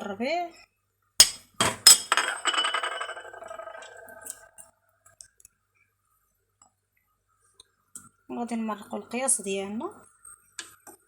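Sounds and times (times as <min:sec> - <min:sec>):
kitchenware clinking and ringing: 0:01.2 - 0:04.5.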